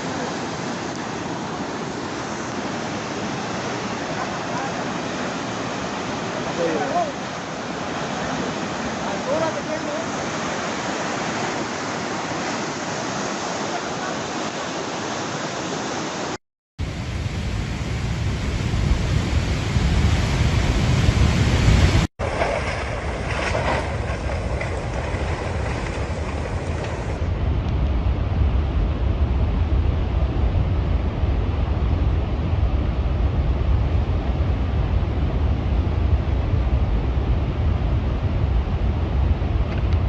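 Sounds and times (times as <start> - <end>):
floodwater rushing: 0.0 - 27.4
wind rumble on microphone: 16.8 - 40.0.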